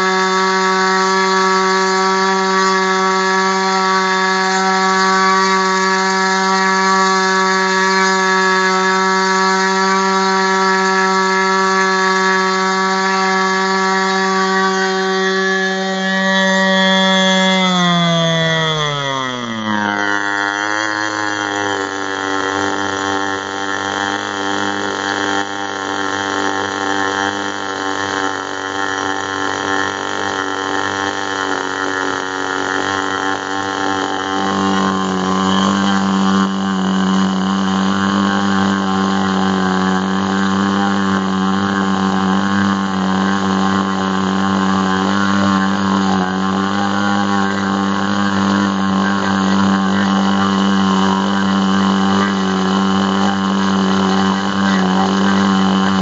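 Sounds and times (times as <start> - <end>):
model glow engine running: 0.0 - 56.0.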